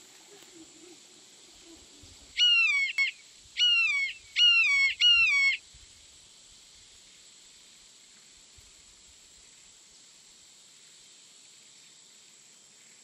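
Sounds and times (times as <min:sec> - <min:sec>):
high bird calls dropping in pitch: 0:02.4 - 0:05.6.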